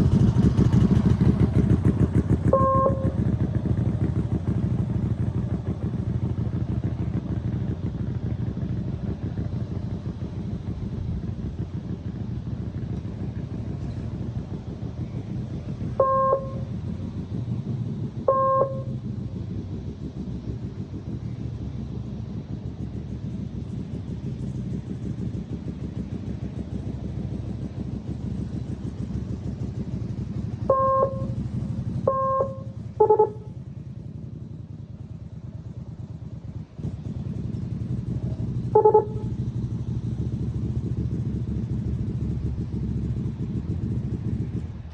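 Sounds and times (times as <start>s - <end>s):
motorcycle engine running: 0.0s - 44.9s
short electronic beeps: 2.6s - 3.2s, 16.0s - 16.6s, 18.3s - 18.9s, 30.7s - 31.4s, 32.1s - 33.5s, 38.8s - 39.2s.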